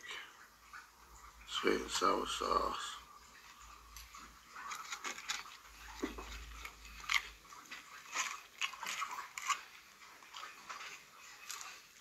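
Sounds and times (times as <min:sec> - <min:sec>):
person chewing crispy food: 0:04.0 - 0:12.0.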